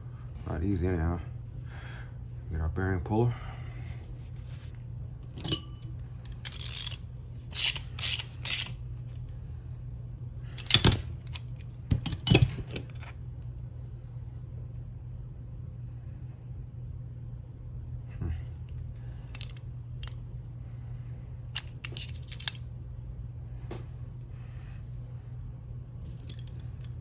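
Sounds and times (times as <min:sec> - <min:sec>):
steady low hum: 0:00.0 - 0:27.0
metal tools clinking: 0:05.4 - 0:08.8, 0:10.5 - 0:13.2, 0:21.4 - 0:22.6.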